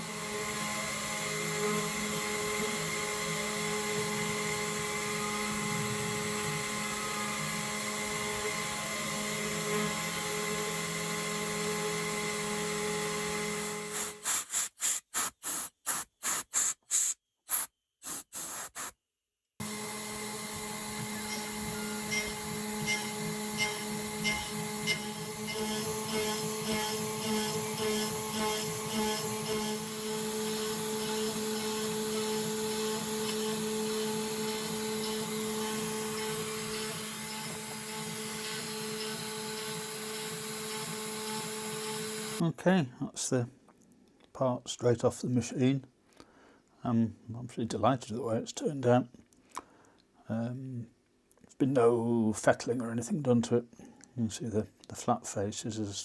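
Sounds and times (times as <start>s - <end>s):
router spindle whining: 0.0s - 14.2s, 19.6s - 42.4s.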